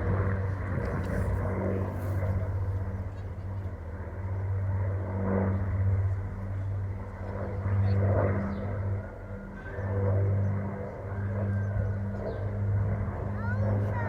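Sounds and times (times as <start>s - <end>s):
piston aircraft engines droning: 0.0s - 14.0s.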